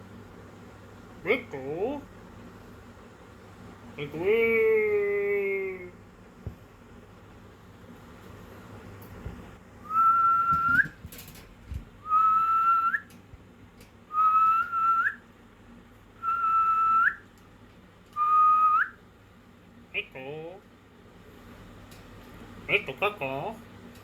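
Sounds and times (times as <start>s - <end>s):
parrot whistling: 9.8s - 11.0s, 12.0s - 13.1s, 14.1s - 15.2s, 16.2s - 17.3s, 18.2s - 19.0s.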